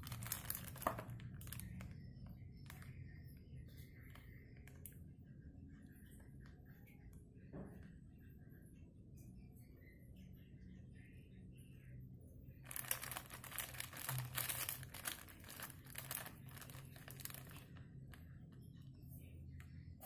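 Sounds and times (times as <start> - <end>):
plastic wrapping crinkling and tearing: 0.0 - 2.0, 12.6 - 18.3.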